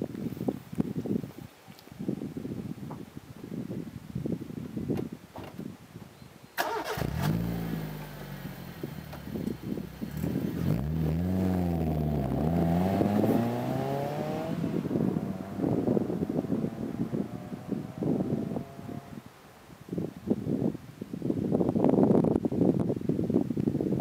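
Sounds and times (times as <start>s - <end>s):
car engine revving: 6.6s - 19.2s.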